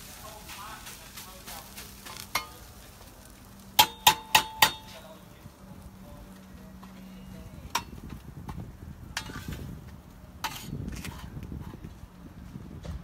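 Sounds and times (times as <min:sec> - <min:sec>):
metal utensil clanging on pan: 0:02.0 - 0:02.7, 0:03.8 - 0:05.0, 0:07.7 - 0:08.0, 0:09.1 - 0:09.6.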